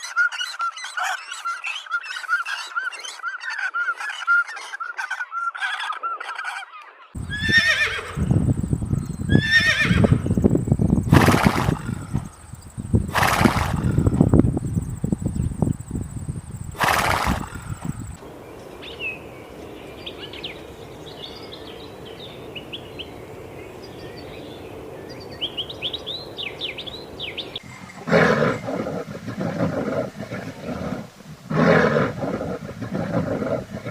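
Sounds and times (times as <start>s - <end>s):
rapid high-pitched animal calls: 0.0s - 8.4s.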